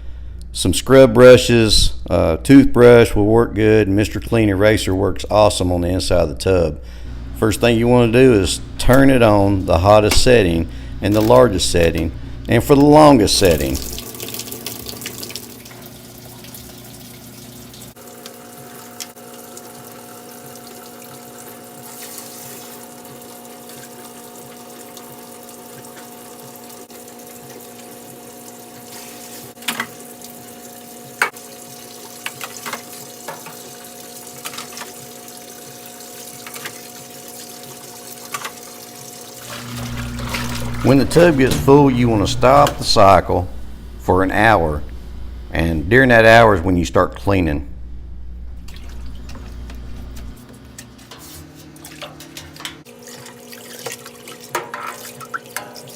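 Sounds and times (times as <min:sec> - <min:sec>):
washing machine hum: 0:00.0 - 0:55.9
water rushing into washing machine: 0:12.7 - 0:43.2, 0:48.6 - 0:50.1, 0:51.5 - 0:55.9.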